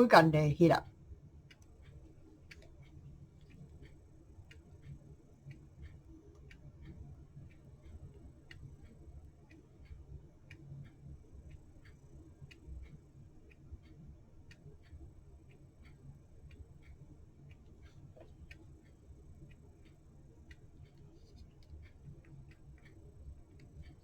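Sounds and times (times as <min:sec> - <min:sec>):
clock ticking: 0:00.0 - 0:00.8, 0:01.5 - 0:24.0.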